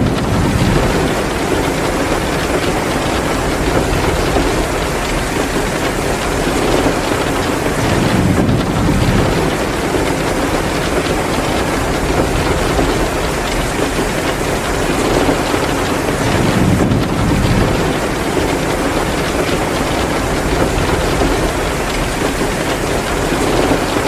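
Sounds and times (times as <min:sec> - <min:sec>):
heavy rain: 0:00.0 - 0:24.0
wood fire crackling: 0:00.0 - 0:24.0.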